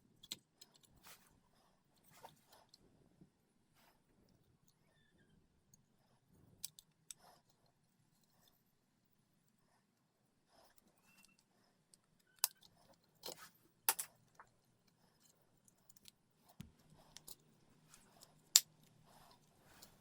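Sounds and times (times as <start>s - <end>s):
plastic parts clicking: 11.0s - 14.1s
soft rustling: 16.4s - 20.0s.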